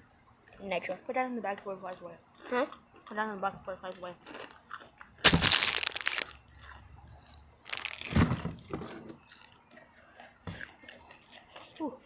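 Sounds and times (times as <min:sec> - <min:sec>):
plastic packaging crinkling: 0:05.2 - 0:06.4, 0:07.7 - 0:08.5.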